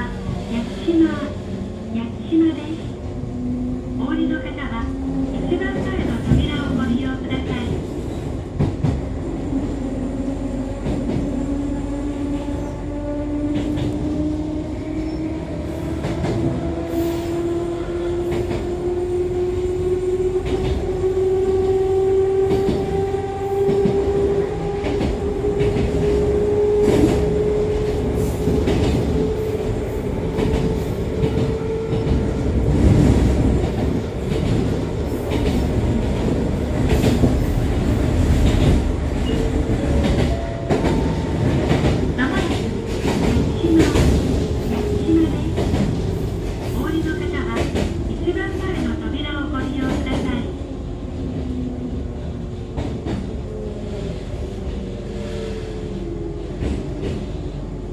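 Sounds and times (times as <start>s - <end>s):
train running rumble: 0.0s - 50.6s.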